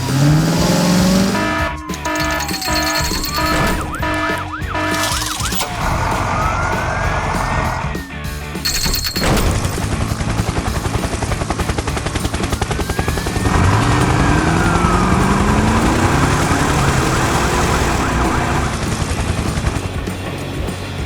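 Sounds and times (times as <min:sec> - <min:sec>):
emergency vehicle siren: 0:00.0 - 0:08.3, 0:12.3 - 0:19.8
fast mechanical chatter: 0:00.0 - 0:21.0
vehicle engine: 0:00.0 - 0:21.0.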